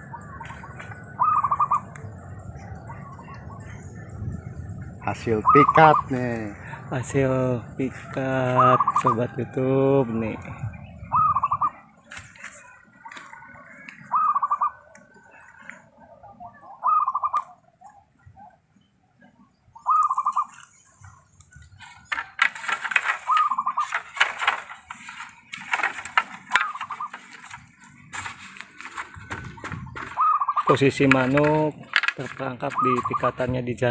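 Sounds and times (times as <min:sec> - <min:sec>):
dove cooing: 0:00.0 - 0:09.6, 0:10.9 - 0:18.6, 0:19.5 - 0:33.6
busy rustling: 0:20.5 - 0:33.9.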